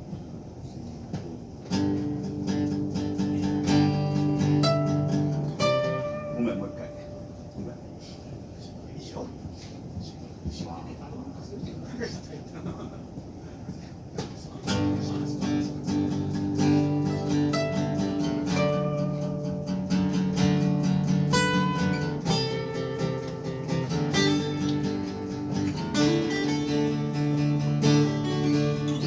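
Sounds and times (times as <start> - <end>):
strummed guitar chords: 1.7 - 7.9, 14.6 - 29.0
picked guitar melody notes: 1.7 - 8.0, 14.6 - 29.0.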